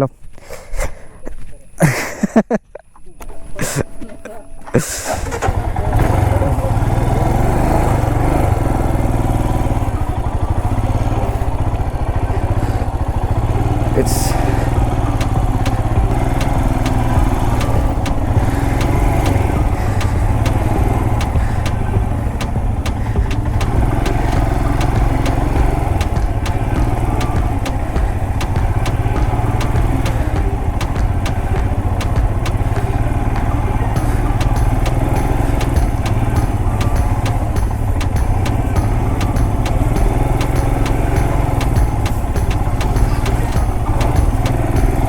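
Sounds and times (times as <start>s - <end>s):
motorcycle engine running: 5.1s - 45.0s
sharp clicks: 14.6s - 45.0s.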